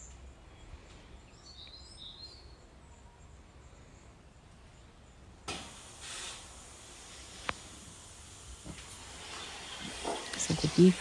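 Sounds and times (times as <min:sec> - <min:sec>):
steady hiss: 0:05.4 - 0:11.0.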